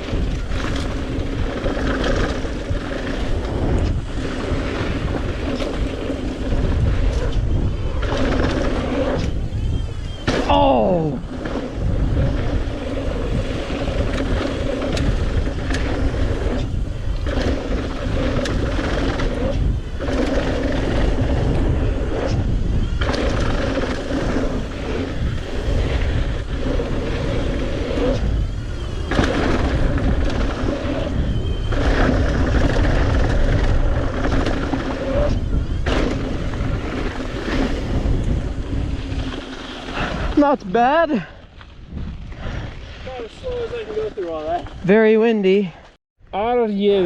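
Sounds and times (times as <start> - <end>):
bike tyre noise: 0.0 - 47.0
wind rumble on microphone: 0.0 - 47.0.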